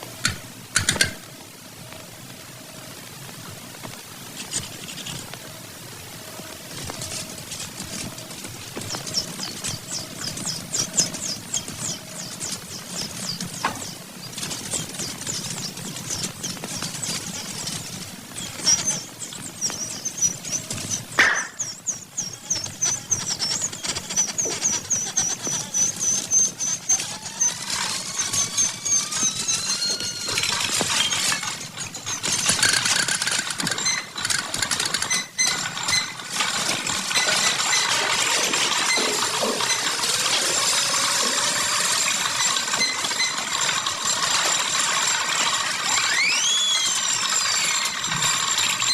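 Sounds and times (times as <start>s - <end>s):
dense mechanical clatter: 4.0s - 48.9s
sweeping whistle glides: 25.7s - 31.3s, 42.6s - 48.9s.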